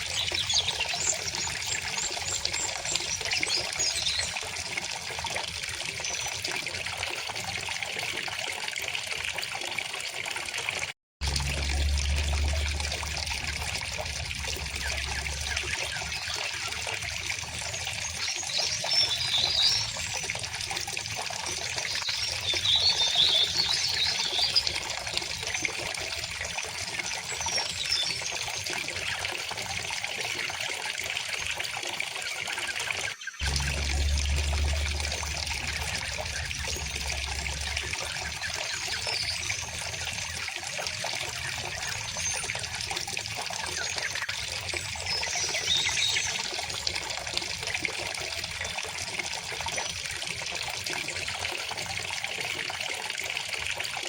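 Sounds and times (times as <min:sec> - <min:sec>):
low rumble: 0:11.2 - 0:17.2, 0:33.4 - 0:40.2
river water flowing: 0:11.2 - 0:21.2, 0:33.4 - 0:43.8.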